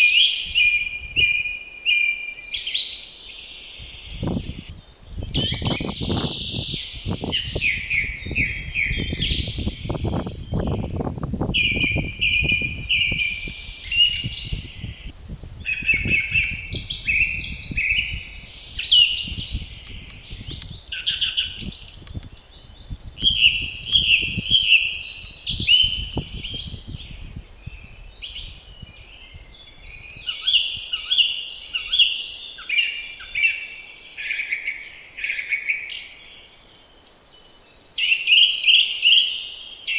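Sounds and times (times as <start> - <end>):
songbirds singing: 0.0 - 39.9
wind gusts rumbling: 3.8 - 30.9.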